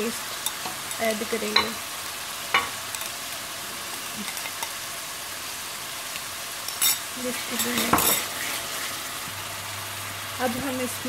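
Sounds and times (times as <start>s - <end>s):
paste sizzling in hot oil: 0.0s - 11.0s
wooden spatula scraping a pan: 7.2s - 9.1s.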